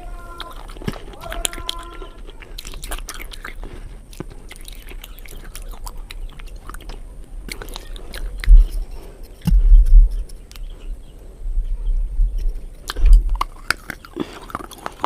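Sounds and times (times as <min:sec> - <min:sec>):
mouth chewing wet clicks: 0:00.0 - 0:15.0
loud low thuds: 0:08.4 - 0:10.3.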